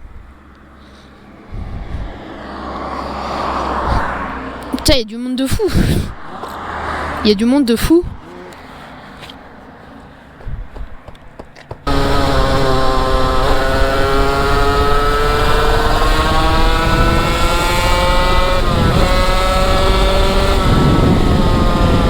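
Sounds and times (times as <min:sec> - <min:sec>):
wind rush: 0:01.3 - 0:08.3, 0:10.4 - 0:11.0, 0:11.9 - 0:22.0
motorcycle engine accelerating: 0:10.6 - 0:22.0.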